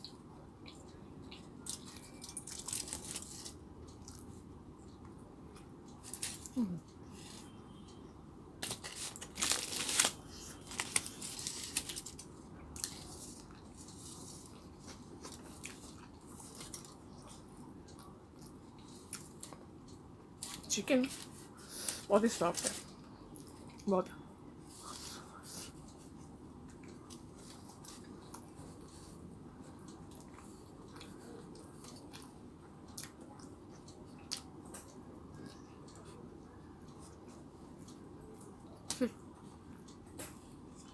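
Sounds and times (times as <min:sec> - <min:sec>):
low background hum: 0:00.0 - 0:40.9
crunchy food crackling while eaten: 0:00.6 - 0:04.4, 0:05.5 - 0:07.9, 0:08.6 - 0:19.6, 0:20.4 - 0:23.9.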